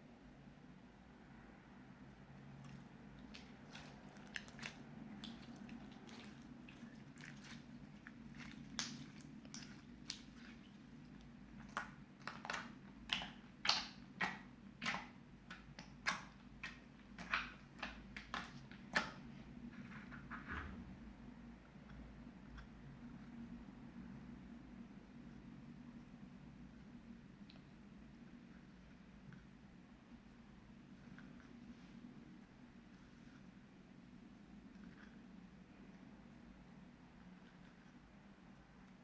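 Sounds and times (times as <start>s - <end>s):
slime squished by hand: 2.5s - 20.4s.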